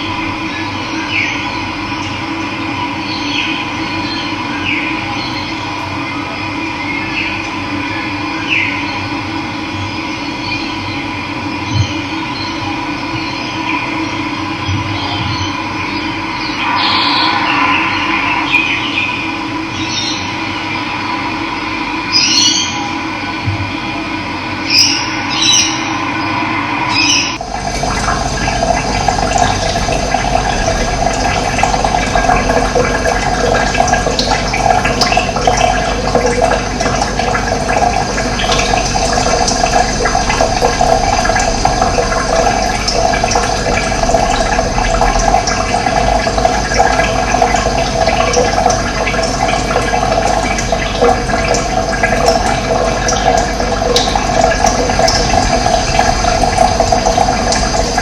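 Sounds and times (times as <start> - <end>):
steady tones: 16.1 - 22.1, 24.5 - 58.0
running water rushing: 16.3 - 20.5, 24.7 - 58.0.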